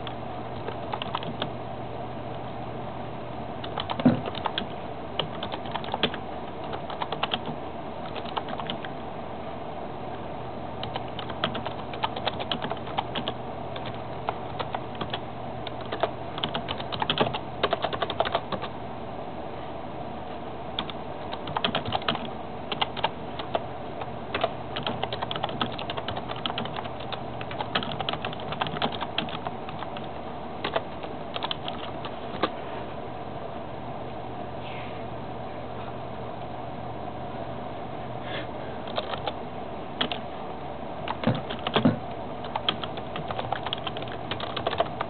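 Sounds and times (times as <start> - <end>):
rapid small clicks and taps: 0.0 - 1.5, 3.6 - 8.9, 10.8 - 18.7, 20.8 - 32.5, 38.9 - 39.4, 41.1 - 45.0
steady low hum: 0.0 - 45.0.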